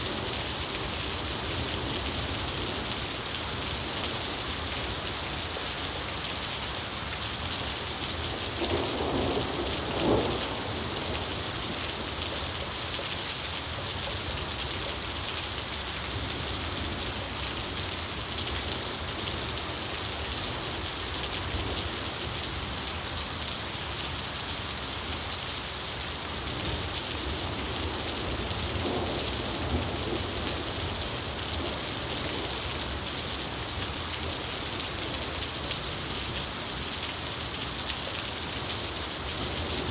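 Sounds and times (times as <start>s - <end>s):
steady rain falling: 0.0s - 39.9s
thunder rumbling: 8.6s - 11.7s.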